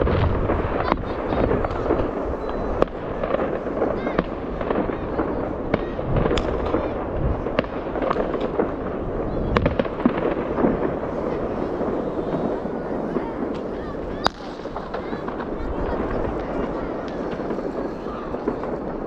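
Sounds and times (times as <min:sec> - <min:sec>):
crowd voices: 0:00.0 - 0:19.0
fireworks and firecrackers bangs: 0:00.0 - 0:19.0.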